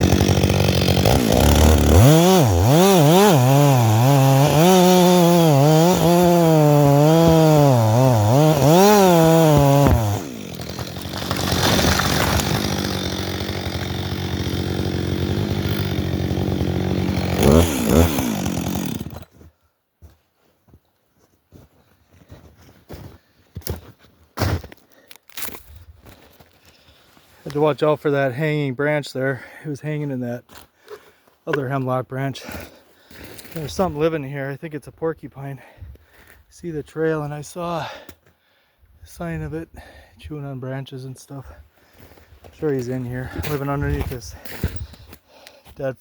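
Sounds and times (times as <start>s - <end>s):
chainsaw cutting wood: 0.0s - 19.3s, 42.5s - 45.2s.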